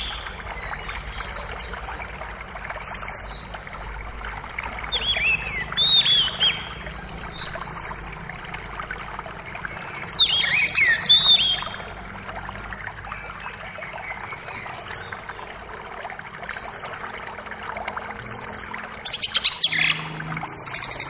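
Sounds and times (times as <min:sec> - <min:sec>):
bird song: 0:00.0 - 0:03.6, 0:04.9 - 0:08.2, 0:09.5 - 0:12.0, 0:12.7 - 0:15.7, 0:18.2 - 0:21.0
creek water running: 0:00.0 - 0:21.0.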